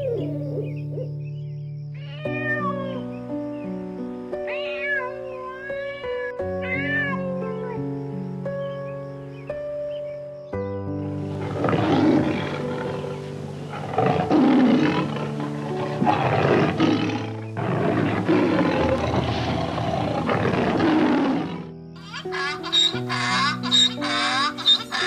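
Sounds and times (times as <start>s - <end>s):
background music: 0.0s - 25.0s
rough roaring animal calls: 11.3s - 21.7s.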